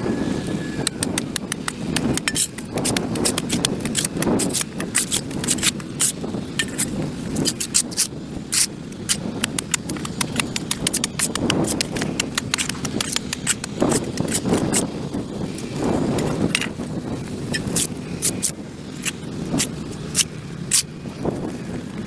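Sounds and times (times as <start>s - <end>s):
tool scraping dirt off concrete: 0.9s - 21.2s.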